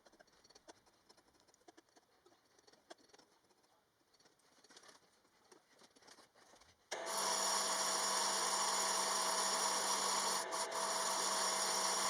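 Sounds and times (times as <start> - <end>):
power tool whining: 6.9 - 12.0.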